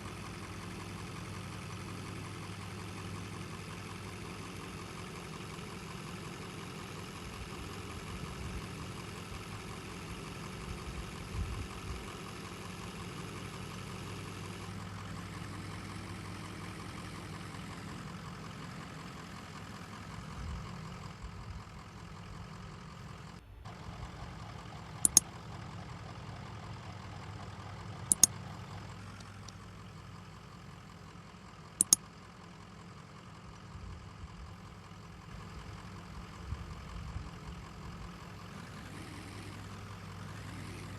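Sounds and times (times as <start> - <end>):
diesel engine running at low revs: 0.0 - 40.9
sharp double clicks: 25.0 - 25.4, 28.0 - 28.4, 31.8 - 32.0.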